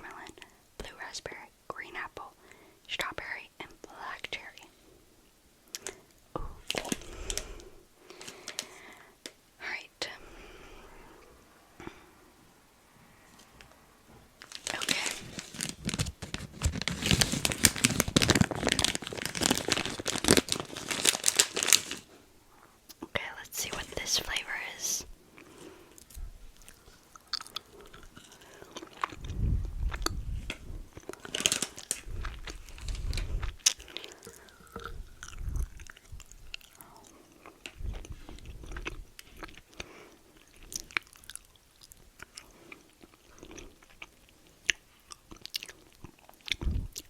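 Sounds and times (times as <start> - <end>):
person chewing crunchy candies: 5.7 - 9.0, 14.4 - 22.1, 24.6 - 47.0.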